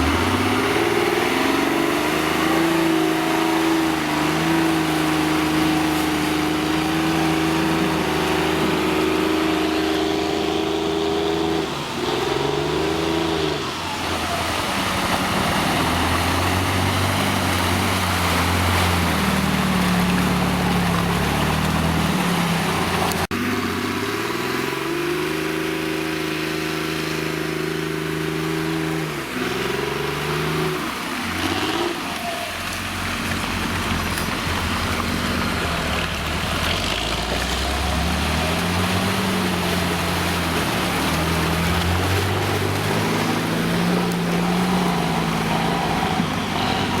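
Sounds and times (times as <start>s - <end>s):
off-road vehicle engine revving: 0.0s - 47.0s
tyre and chassis noise: 0.0s - 47.0s.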